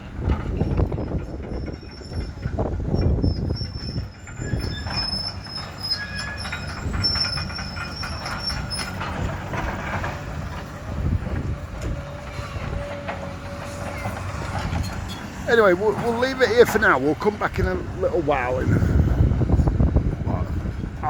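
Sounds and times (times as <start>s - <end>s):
machinery engine rumble: 0.0s - 21.0s
metallic squealing: 1.0s - 10.3s.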